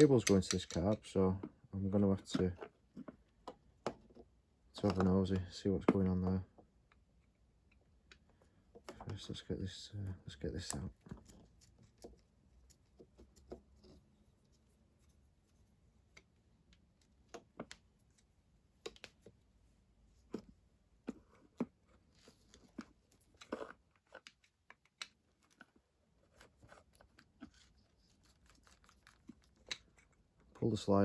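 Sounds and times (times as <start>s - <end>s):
small tools clicking and scraping: 0.0s - 1.2s, 21.1s - 30.5s.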